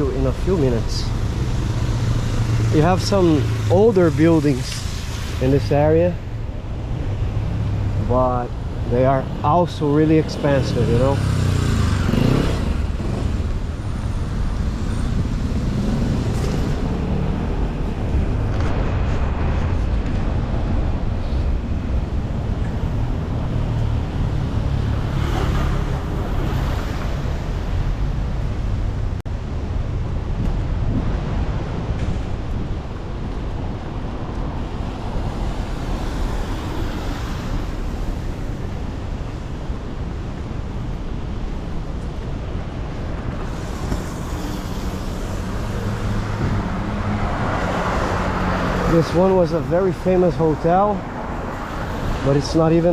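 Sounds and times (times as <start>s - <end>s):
cars passing with road noise: 0.0s - 52.9s
wind rumble on microphone: 0.0s - 52.9s
tyre hiss on wet street: 3.2s - 6.1s, 43.4s - 46.4s.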